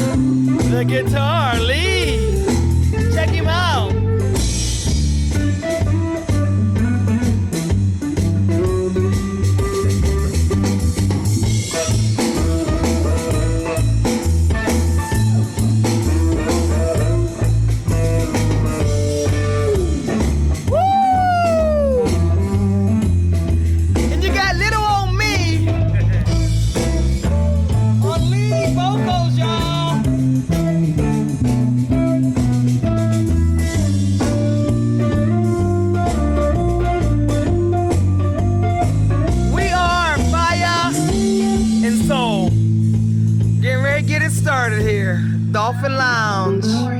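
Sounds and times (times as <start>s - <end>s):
guitar notes: 0.0s - 4.3s
electric guitar lead lines: 0.0s - 20.8s, 24.0s - 43.0s
bass line: 0.0s - 46.9s
drums: 0.0s - 46.9s.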